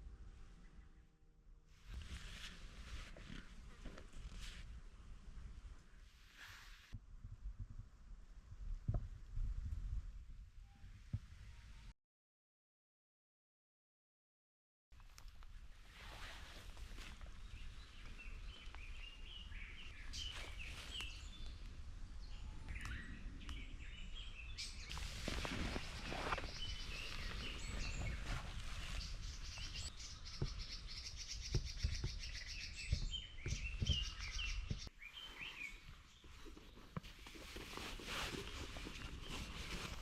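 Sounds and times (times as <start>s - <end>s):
small birds chirping: 16.6s - 37.4s
sharp knocks and rustles: 25.0s - 34.9s.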